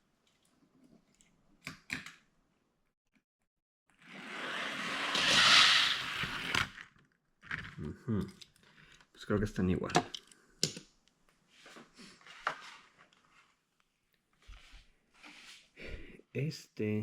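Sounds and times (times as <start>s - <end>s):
toy cars rolling down track: 4.0s - 8.7s.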